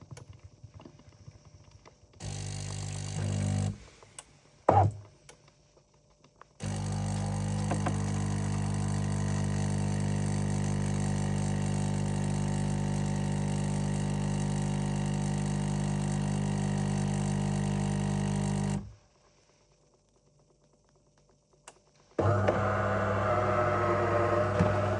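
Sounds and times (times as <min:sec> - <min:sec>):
coffee machine humming: 0:02.2 - 0:03.8, 0:06.6 - 0:18.9, 0:22.2 - 0:24.9.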